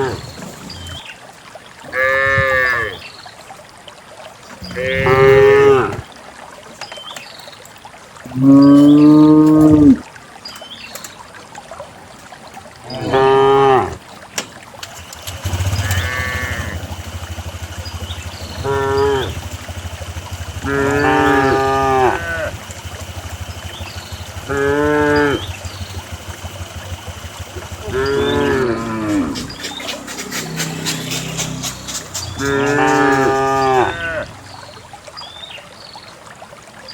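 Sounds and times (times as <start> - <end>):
cows mooing: 1.9 - 3.0, 4.6 - 6.0, 8.3 - 10.0, 12.9 - 14.0, 15.7 - 16.8, 18.6 - 19.4, 20.6 - 22.6, 24.2 - 25.5, 26.7 - 34.5
low steady hum: 16.4 - 35.4.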